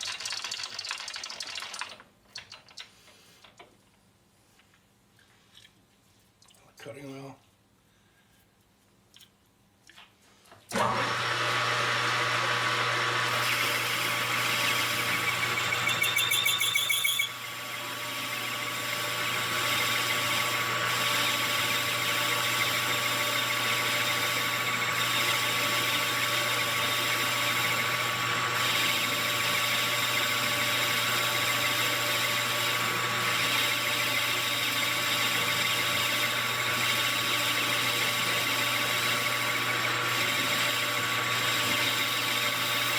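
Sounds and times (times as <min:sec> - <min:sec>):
power tool cutting wheel whining: 0:10.7 - 0:42.9.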